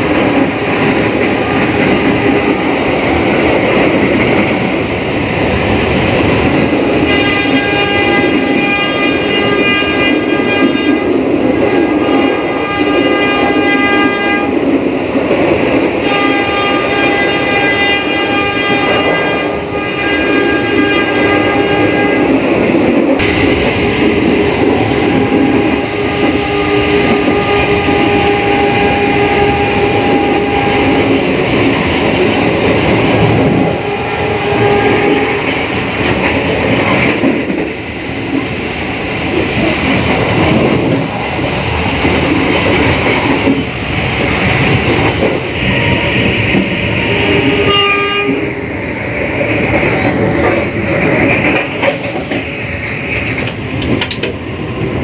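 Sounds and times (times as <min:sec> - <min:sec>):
train rumble and wheel noise: 0:00.0 - 0:55.0
locomotive horn blasts: 0:07.0 - 0:14.6, 0:16.0 - 0:22.4, 0:24.6 - 0:31.2, 0:33.6 - 0:35.5, 0:47.1 - 0:48.5.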